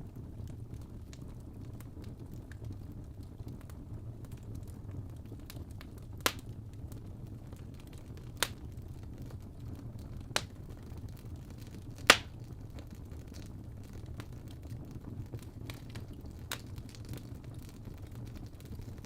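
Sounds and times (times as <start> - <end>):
wood fire crackling: 0.0 - 19.0
sharp fire pops: 6.2 - 6.5, 8.4 - 8.7, 10.4 - 10.6, 12.0 - 12.5.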